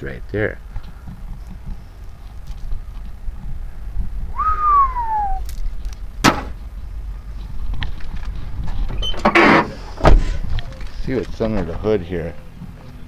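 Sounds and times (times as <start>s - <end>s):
truck door clicks: 6.2s - 6.6s
truck door squeak: 8.9s - 10.4s.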